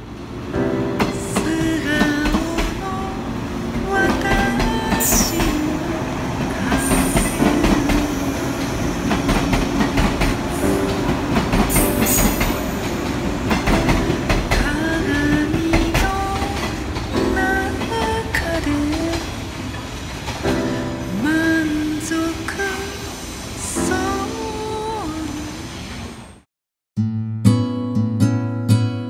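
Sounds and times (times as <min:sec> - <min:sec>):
train wheels clattering over joints: 0:06.4 - 0:20.8.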